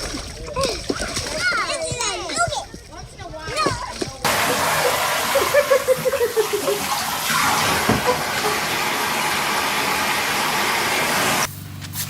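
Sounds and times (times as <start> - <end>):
rushing water: 3.9 - 11.5.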